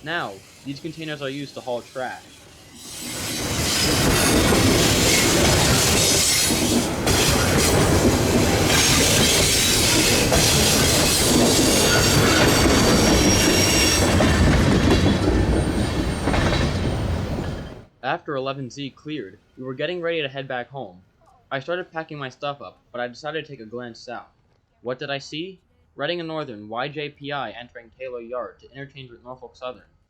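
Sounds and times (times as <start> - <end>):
freight train cars rolling: 0.0 - 17.9
high-pitched wheel squeal: 1.7 - 7.8, 8.7 - 14.5.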